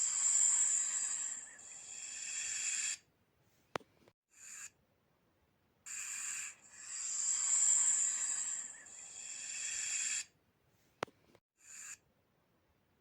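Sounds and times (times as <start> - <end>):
snake hissing: 0.0 - 3.0, 5.9 - 10.3.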